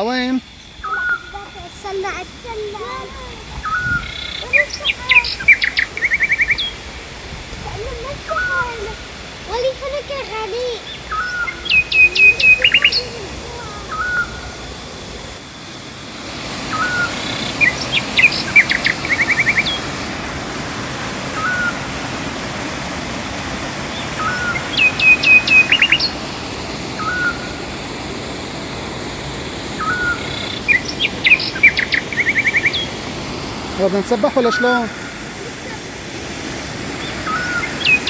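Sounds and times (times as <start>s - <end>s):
waterfall rushing: 0.0s - 38.0s
songbird singing with trill: 0.6s - 6.8s, 7.8s - 14.6s, 16.7s - 20.0s, 21.4s - 21.8s, 23.9s - 27.6s, 29.8s - 33.0s, 37.0s - 38.0s.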